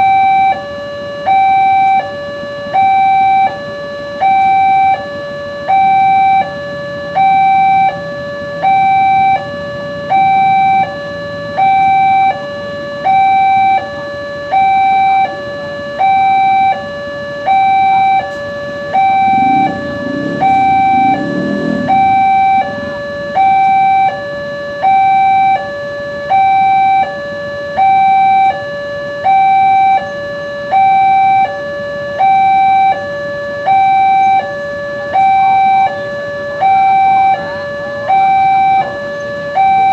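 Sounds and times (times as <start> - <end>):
level crossing warning alarm: 0.0 - 39.9
passing vehicle rumble: 18.4 - 25.7.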